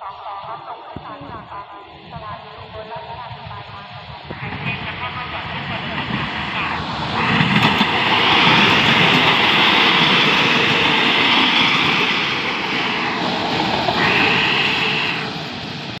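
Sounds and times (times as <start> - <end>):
train passing close by: 0.0 - 16.0
wheels clattering on rails: 7.1 - 15.6.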